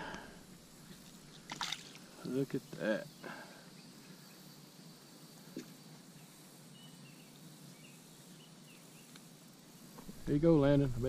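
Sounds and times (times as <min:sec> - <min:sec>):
outdoor background hiss: 0:00.0 - 0:11.0
small birds chirping: 0:00.1 - 0:11.0.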